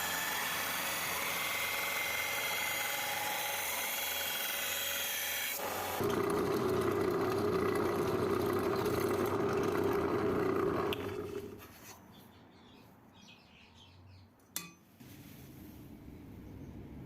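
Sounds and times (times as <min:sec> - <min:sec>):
power tool motor spinning: 0:00.0 - 0:11.7.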